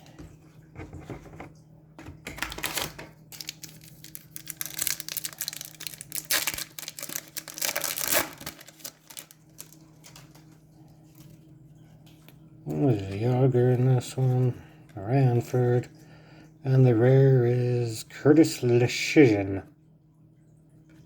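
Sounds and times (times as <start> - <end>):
faint steady hum: 0.0 - 21.0
trading cards crinkling and flicking: 2.2 - 11.5.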